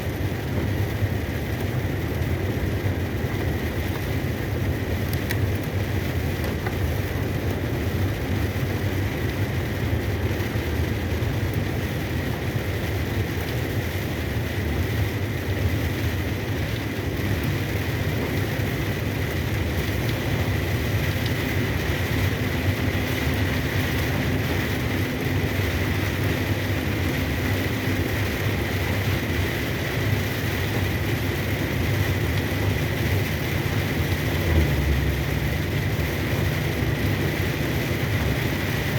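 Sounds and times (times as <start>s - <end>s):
tyres hissing on wet road: 0.0s - 38.9s
truck engine drone: 13.7s - 38.9s.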